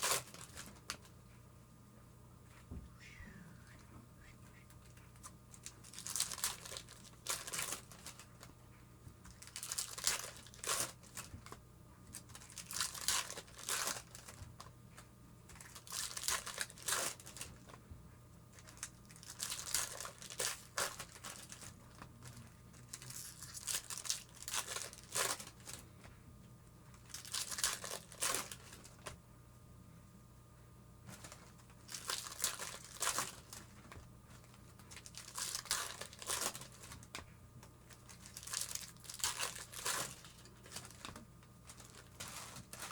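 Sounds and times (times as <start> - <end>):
card pack wrappers tearing: 0.0 - 1.1, 5.6 - 8.3, 9.3 - 14.7, 15.6 - 17.7, 18.6 - 25.8, 27.0 - 29.1, 31.1 - 37.2, 37.9 - 42.9.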